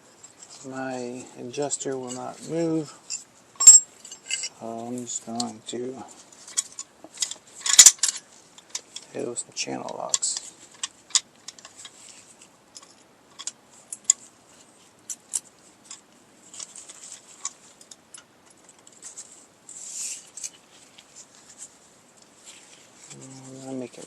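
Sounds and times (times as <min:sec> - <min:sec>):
metal scrape: 0:00.2 - 0:17.9.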